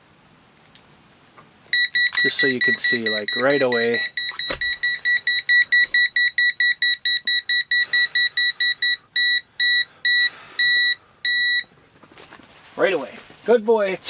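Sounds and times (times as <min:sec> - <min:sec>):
gas detector alarm beeping: 0:01.7 - 0:11.7.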